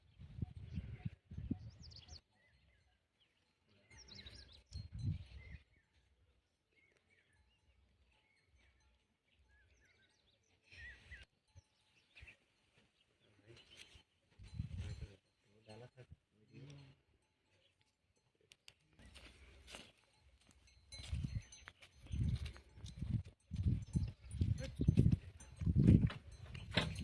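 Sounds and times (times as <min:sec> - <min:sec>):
birds chirping faintly: 0:00.0 - 0:14.6.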